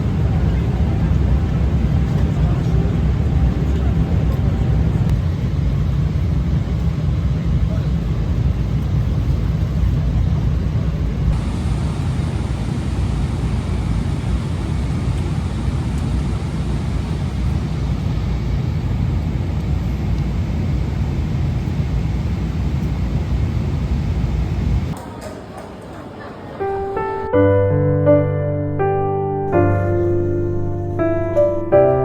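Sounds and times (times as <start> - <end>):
airliner cabin engine rumble: 0.0 - 25.0.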